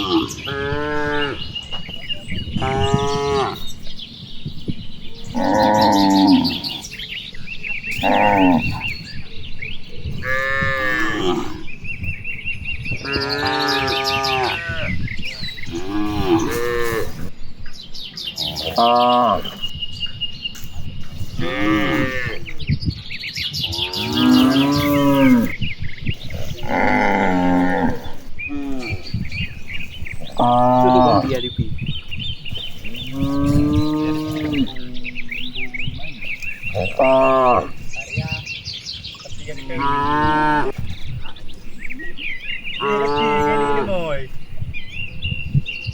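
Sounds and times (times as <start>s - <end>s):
cattle mooing: 0.0s - 1.6s, 2.4s - 3.8s, 5.3s - 7.0s, 10.1s - 11.7s, 13.0s - 15.0s, 15.6s - 17.3s, 21.2s - 22.6s, 23.7s - 25.6s, 26.5s - 29.2s, 30.3s - 31.6s, 32.9s - 37.8s, 42.7s - 44.0s
birds chirping: 0.0s - 45.9s.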